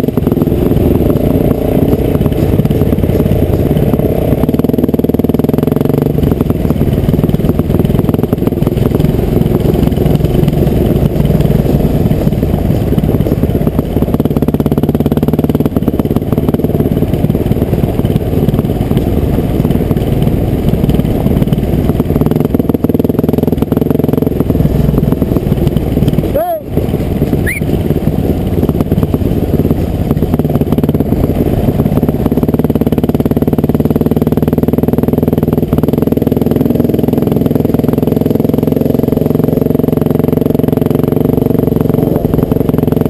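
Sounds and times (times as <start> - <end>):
two-stroke motorcycle engine: 0.0 - 43.0.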